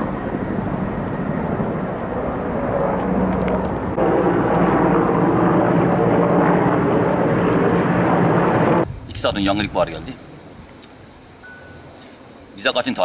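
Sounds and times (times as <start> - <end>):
engine drone: 0.0 - 8.8.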